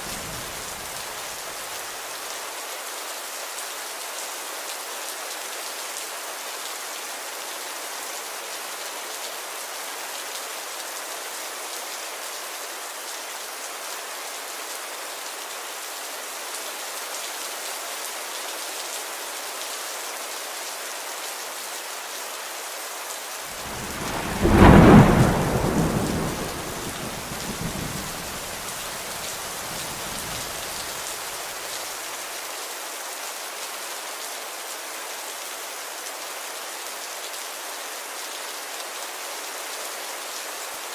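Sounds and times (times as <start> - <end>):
steady rain: 0.0 - 40.9
thunder clap and rumble: 23.6 - 30.9.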